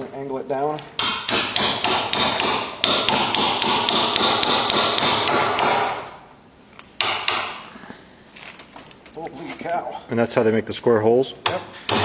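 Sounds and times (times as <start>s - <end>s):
hammer striking chisel: 1.0s - 6.2s, 7.0s - 7.7s, 11.4s - 12.0s.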